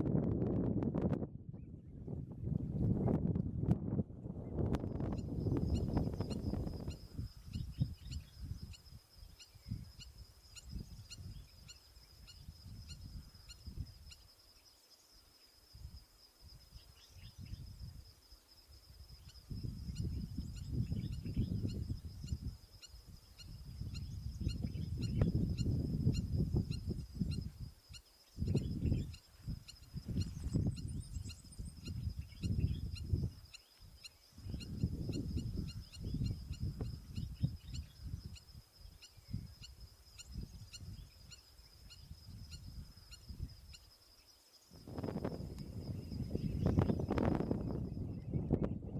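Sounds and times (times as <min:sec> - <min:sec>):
gusty wind rumble: 0:00.0 - 0:08.7, 0:19.1 - 0:27.7, 0:28.3 - 0:33.5, 0:34.4 - 0:38.6, 0:44.7 - 0:48.9
high insect drone: 0:04.3 - 0:48.9
distant bird chirps: 0:04.8 - 0:15.6, 0:19.1 - 0:48.0
low gusty rumble: 0:44.8 - 0:48.9.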